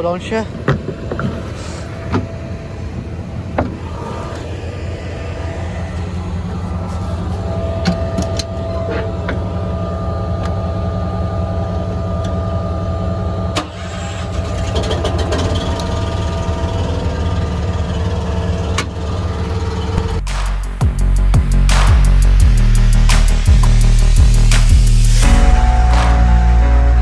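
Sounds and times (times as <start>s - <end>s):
faint steady whine: 0.0s - 20.1s
engine droning: 0.0s - 27.0s.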